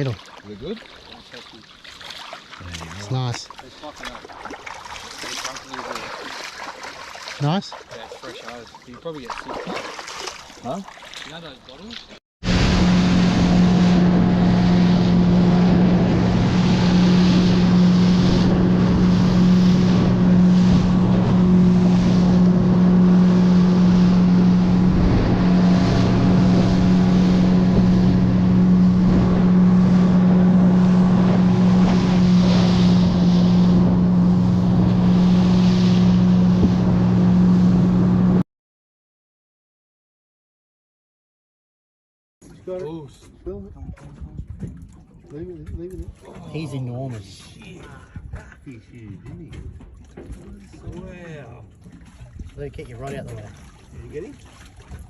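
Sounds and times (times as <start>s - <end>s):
outboard motor running: 12.4s - 38.4s, 42.4s - 55.0s
wind noise on microphone: 12.4s - 38.4s, 43.3s - 46.2s, 47.7s - 55.0s.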